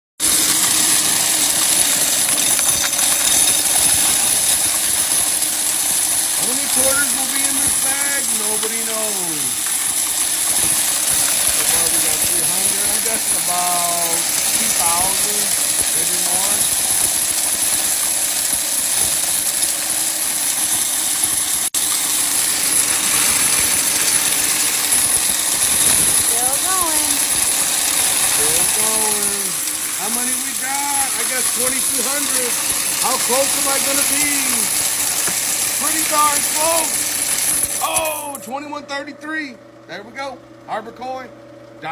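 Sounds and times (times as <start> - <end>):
coin counting machine rattling: 0.2 - 38.6.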